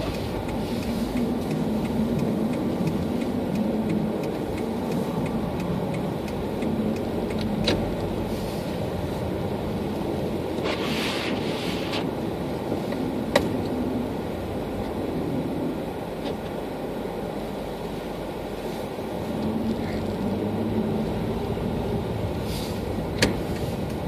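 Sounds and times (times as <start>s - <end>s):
car engine hum: 0.0s - 24.0s
road noise: 0.0s - 24.0s
short hissing swishes: 10.6s - 12.1s.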